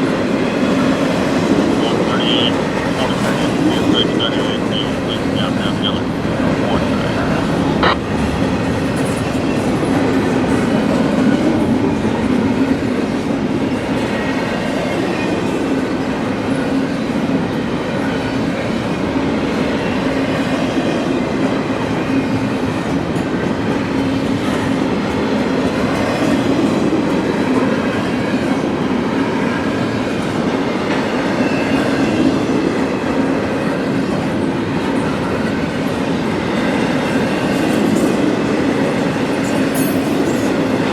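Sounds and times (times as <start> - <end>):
steel wheels on rails: 34.0 - 40.9.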